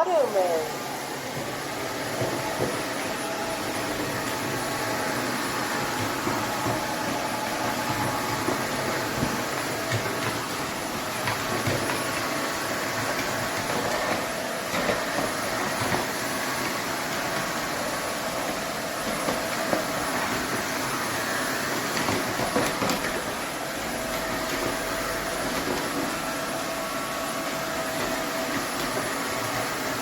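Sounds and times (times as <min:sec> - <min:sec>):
vacuum cleaner motor whine: 0:00.0 - 0:30.0.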